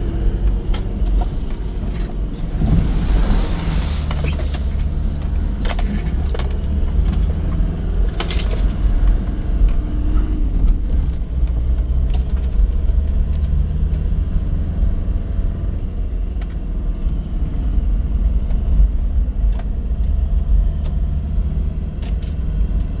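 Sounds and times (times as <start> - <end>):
vehicle engine and road rumble: 0.0 - 23.0
rattles and knocks: 0.7 - 13.0.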